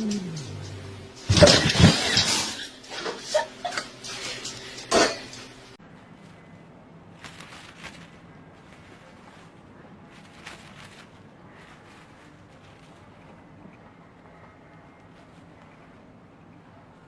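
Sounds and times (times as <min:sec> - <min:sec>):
hard objects clattering: 0:00.0 - 0:05.6.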